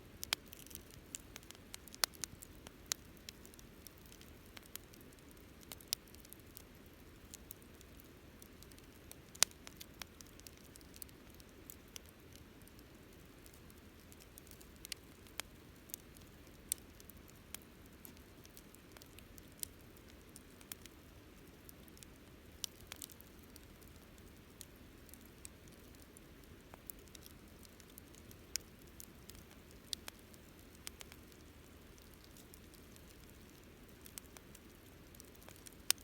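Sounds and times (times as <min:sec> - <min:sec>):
campfire crackling: 0:00.0 - 0:36.0.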